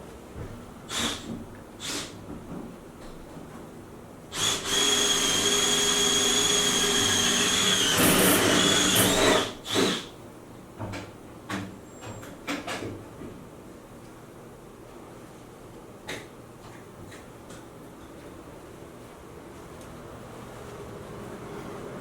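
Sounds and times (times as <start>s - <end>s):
small electric motor whining: 4.4s - 10.0s.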